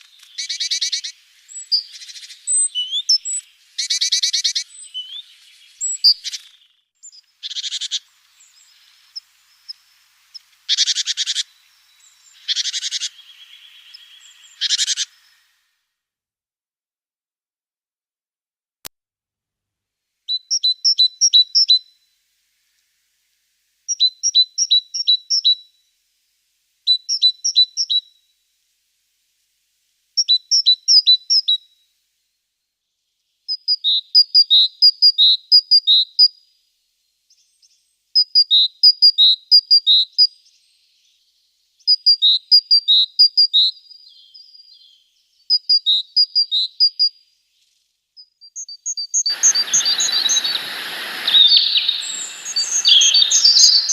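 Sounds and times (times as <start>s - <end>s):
small songbird singing: 0.0s - 15.7s, 20.3s - 22.1s, 23.9s - 25.8s, 26.9s - 28.2s, 30.2s - 31.8s, 32.8s - 36.5s, 37.3s - 53.9s.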